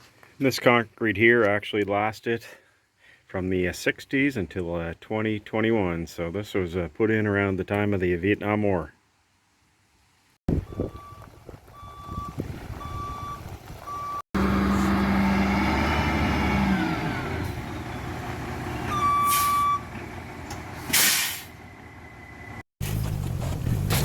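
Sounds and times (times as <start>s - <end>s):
truck engine running loud: 13.7s - 24.0s
reversing alarm beeping: 18.8s - 19.9s
air brakes hiss: 20.9s - 21.6s.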